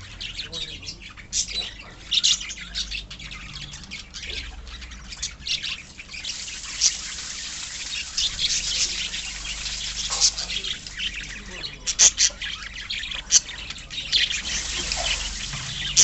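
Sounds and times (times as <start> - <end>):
lovebirds and budgerigars chattering: 0.0 - 16.0.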